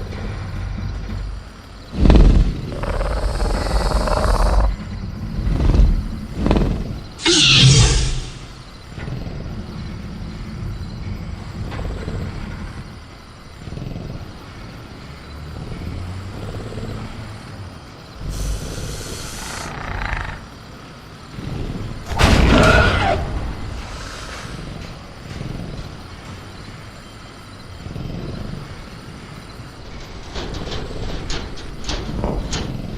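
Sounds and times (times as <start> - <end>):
low rumbling: 0.0 - 13.5
loud burst: 7.2 - 8.6
hissing burst: 7.2 - 8.7, 18.2 - 19.8.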